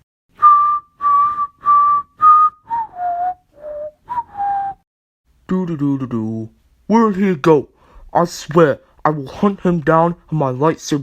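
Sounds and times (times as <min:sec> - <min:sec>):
person whistling a tune: 0:00.4 - 0:04.8.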